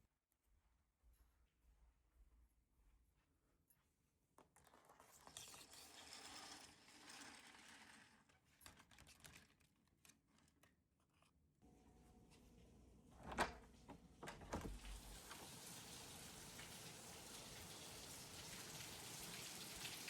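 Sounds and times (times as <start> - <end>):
faint rustling and crinkling: 0.6 - 14.0.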